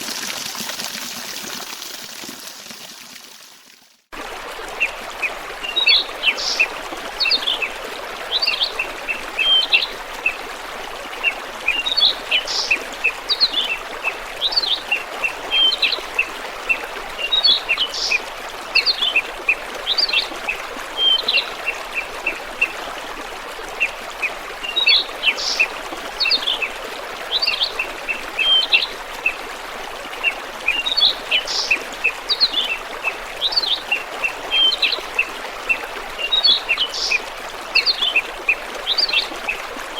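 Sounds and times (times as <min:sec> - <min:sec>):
flowing water rushing: 0:00.0 - 0:39.9
songbird singing: 0:05.6 - 0:10.4, 0:11.7 - 0:13.8, 0:14.4 - 0:18.2, 0:24.6 - 0:26.7, 0:27.3 - 0:29.4, 0:30.6 - 0:39.6.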